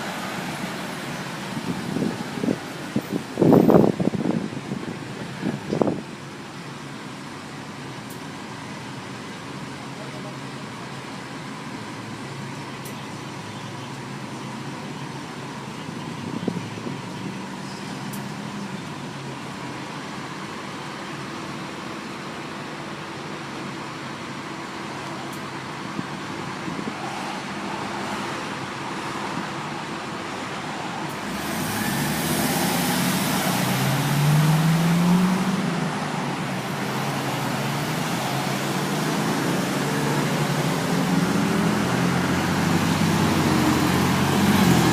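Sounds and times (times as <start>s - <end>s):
truck engine revving: 31.1s - 44.9s.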